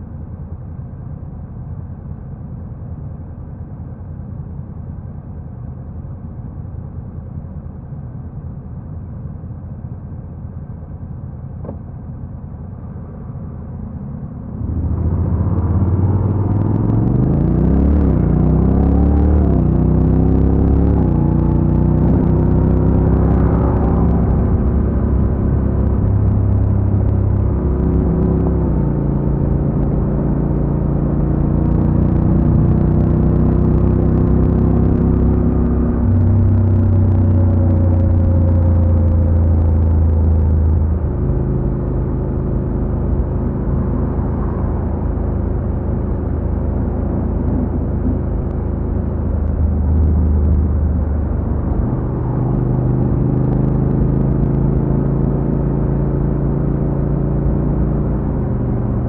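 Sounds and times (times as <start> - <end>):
motorcycle engine running: 14.5 - 59.0.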